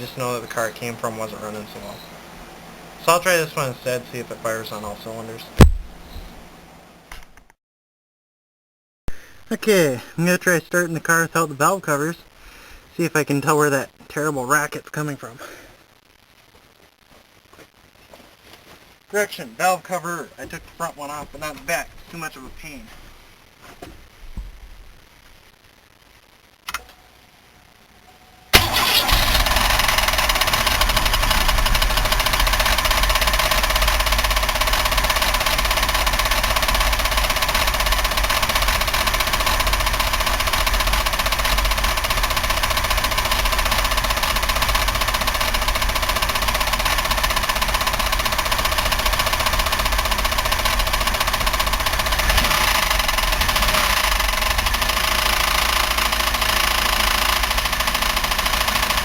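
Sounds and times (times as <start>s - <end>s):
car engine starting: 28.6s - 59.0s
engine knocking: 28.6s - 59.0s.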